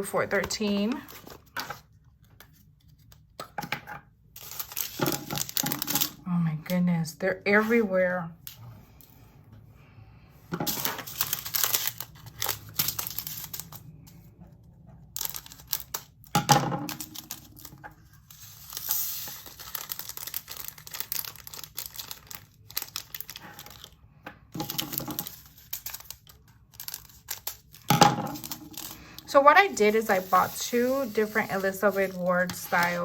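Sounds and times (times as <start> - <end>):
plastic bag crinkling: 4.4 - 6.2, 10.7 - 13.9, 15.0 - 24.0, 24.6 - 33.0.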